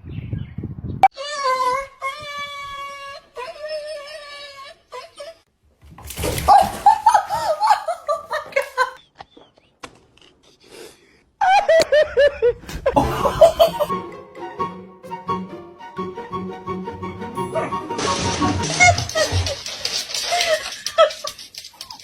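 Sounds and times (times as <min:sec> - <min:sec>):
person laughing: 0:06.5 - 0:09.4, 0:11.4 - 0:13.9, 0:18.6 - 0:21.5.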